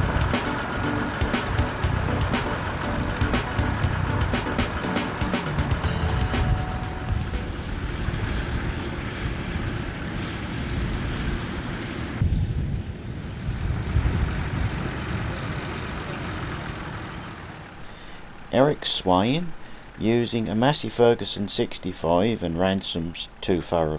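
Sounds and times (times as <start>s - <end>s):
higher hiss: 0.0s - 8.2s
tractor engine running: 0.0s - 12.2s, 12.9s - 23.9s.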